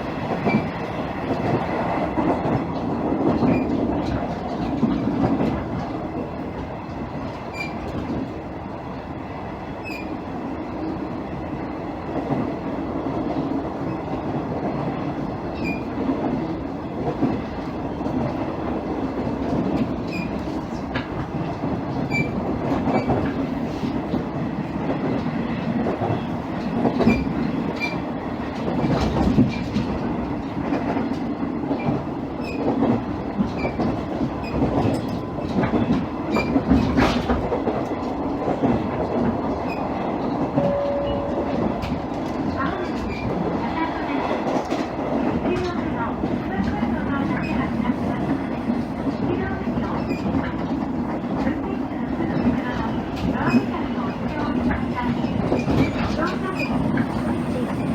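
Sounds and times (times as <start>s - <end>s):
diesel railcar engine drone: 34.3s - 57.9s
short steady tone: 40.6s - 41.6s.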